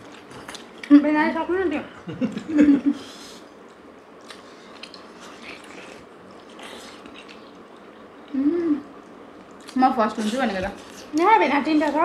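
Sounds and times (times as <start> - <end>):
people chewing dumplings: 0.0 - 1.0, 2.2 - 12.0
person humming: 8.3 - 8.9.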